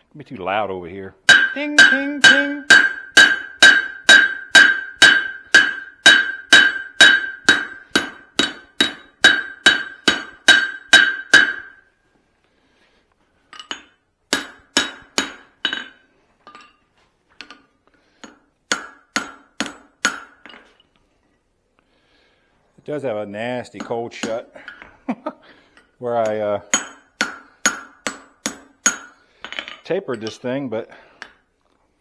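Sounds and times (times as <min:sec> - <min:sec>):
hammer striking anvil: 0:01.3 - 0:11.8, 0:13.7 - 0:16.0, 0:18.3 - 0:20.6, 0:26.2 - 0:30.4.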